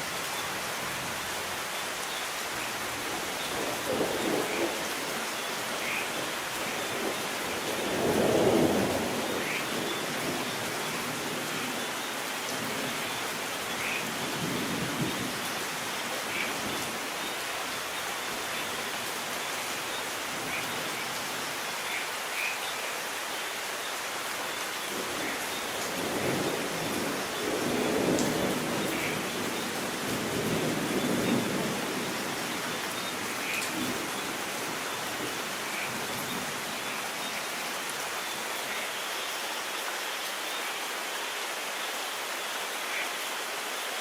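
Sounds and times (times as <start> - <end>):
steady rain falling: 0.0 - 44.0.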